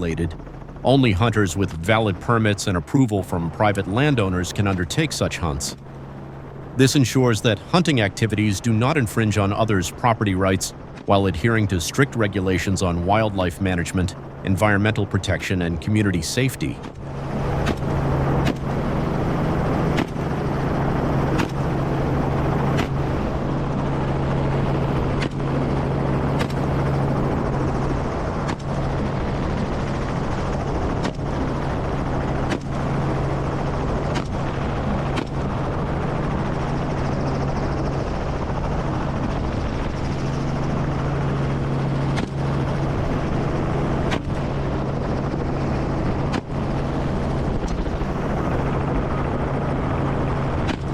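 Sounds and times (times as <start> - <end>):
helicopter engine and rotor: 0.0 - 50.9.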